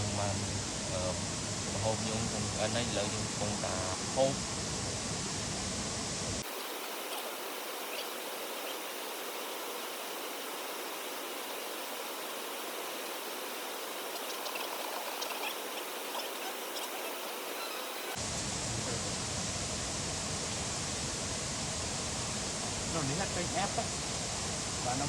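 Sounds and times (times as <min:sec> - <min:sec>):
water flowing: 0:06.4 - 0:18.2
faint insect chirps: 0:06.4 - 0:18.4.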